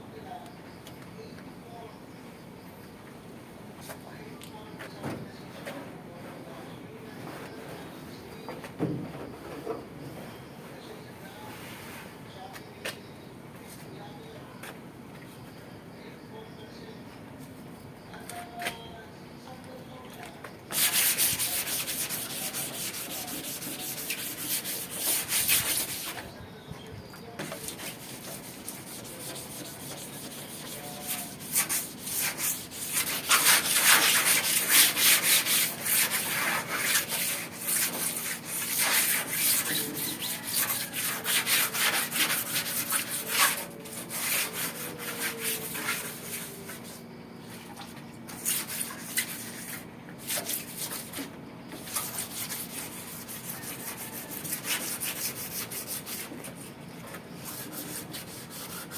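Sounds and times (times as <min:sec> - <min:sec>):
sandpaper scrubbing sheet metal: 0:20.7 - 0:26.2, 0:27.4 - 0:47.0, 0:48.3 - 0:58.9.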